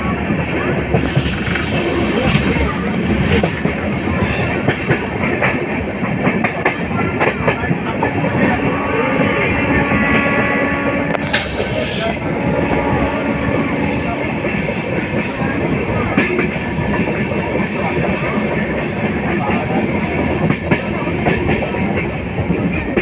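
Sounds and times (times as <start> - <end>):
train wheels clattering on rails: 0.0 - 23.0
high-pitched squeal: 8.3 - 16.2.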